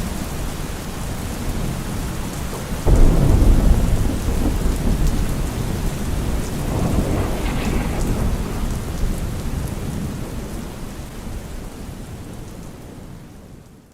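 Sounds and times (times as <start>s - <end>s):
steady rain in woodland: 0.0s - 13.9s
low rumble of thunder: 2.7s - 12.9s.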